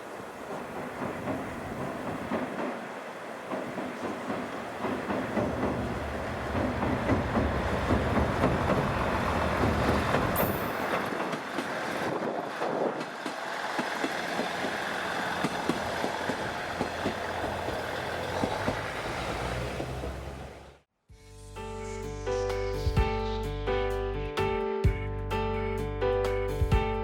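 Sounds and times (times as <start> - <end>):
train wheels clicking over track: 0.0 - 20.6.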